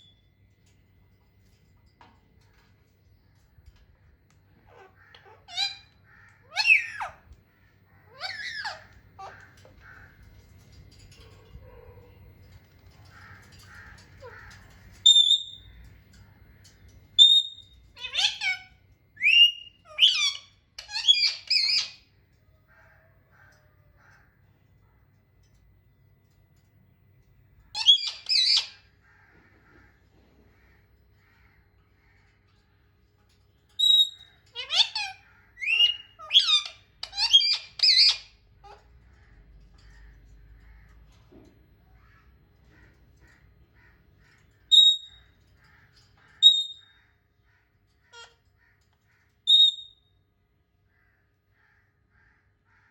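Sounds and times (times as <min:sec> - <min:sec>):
parrot whistling and squawking: 0:04.7 - 0:07.2, 0:08.1 - 0:09.4, 0:15.0 - 0:15.6, 0:17.2 - 0:22.0, 0:27.8 - 0:28.9, 0:33.8 - 0:38.9, 0:44.7 - 0:45.2, 0:46.4 - 0:46.9, 0:49.5 - 0:50.0.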